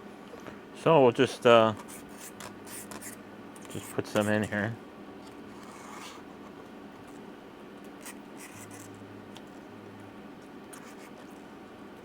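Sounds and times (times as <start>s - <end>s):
low steady hum: 0.0s - 12.0s
faint scratching: 5.5s - 7.2s, 8.0s - 8.9s.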